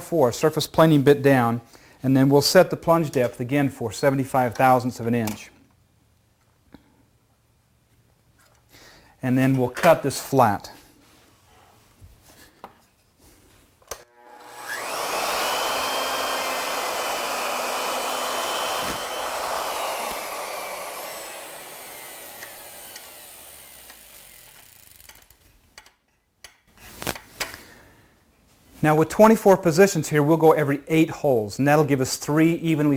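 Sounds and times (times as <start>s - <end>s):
router motor whining: 14.0s - 25.3s.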